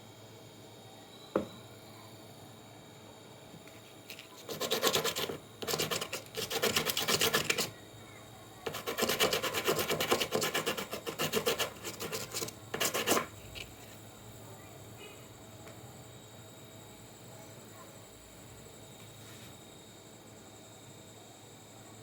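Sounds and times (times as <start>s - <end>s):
rapid scraping strokes: 4.4s - 7.7s, 8.7s - 13.3s.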